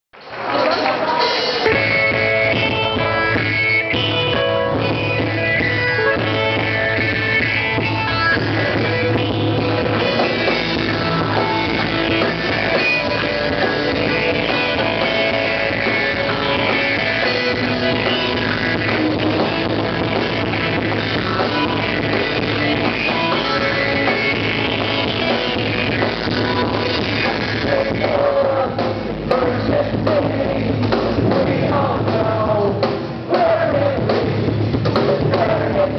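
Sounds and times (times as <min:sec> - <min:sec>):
drum kit: 0:00.2 - 0:35.9
electric guitar: 0:00.2 - 0:35.9
bass line: 0:01.1 - 0:35.9
person singing: 0:25.9 - 0:34.4, 0:35.0 - 0:35.9.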